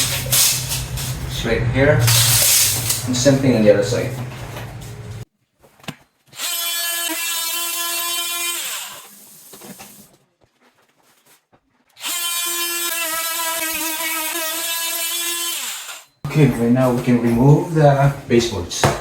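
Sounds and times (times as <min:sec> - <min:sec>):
handheld power tool running: 0:00.0 - 0:01.3, 0:02.0 - 0:03.1, 0:06.4 - 0:09.3, 0:12.0 - 0:16.2.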